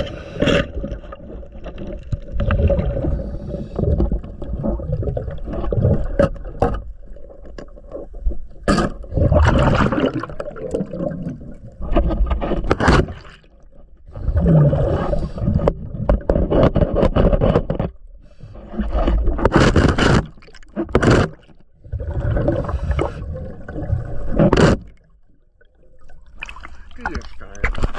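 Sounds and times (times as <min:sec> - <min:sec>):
underwater regulator exhale bubbles: 0:00.0 - 0:06.6, 0:08.6 - 0:11.9, 0:14.1 - 0:16.2, 0:21.8 - 0:25.1.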